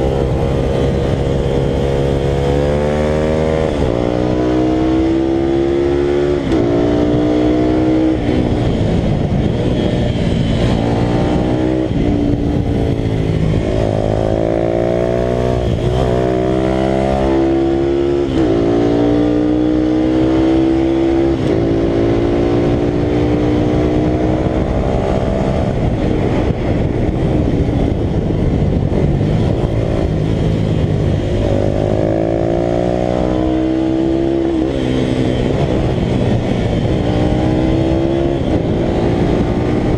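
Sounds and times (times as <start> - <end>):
motorcycle engine accelerating: 0.0 - 39.9
rushing wind and road noise: 0.0 - 39.9.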